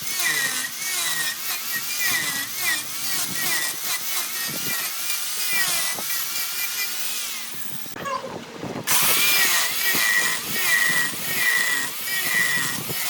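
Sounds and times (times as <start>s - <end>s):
lathe tool cutting wood: 0.0s - 7.9s, 8.9s - 13.0s.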